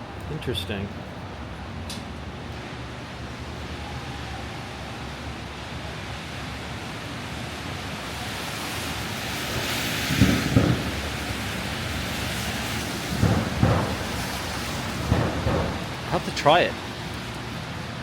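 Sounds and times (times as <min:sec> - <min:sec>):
traffic wash: 0:00.0 - 0:18.0
rain and wet snow hiss: 0:04.4 - 0:18.0
low thumps: 0:13.1 - 0:16.0.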